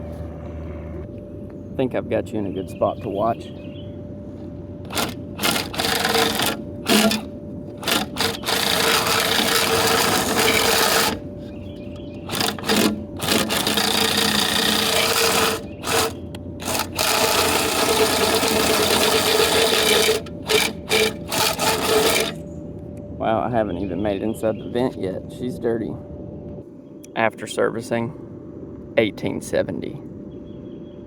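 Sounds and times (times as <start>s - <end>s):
steady hum: 0.0s - 31.0s
power drill spinning a brush: 4.9s - 11.2s, 12.3s - 22.4s
brush scraping against vent: 4.9s - 22.4s.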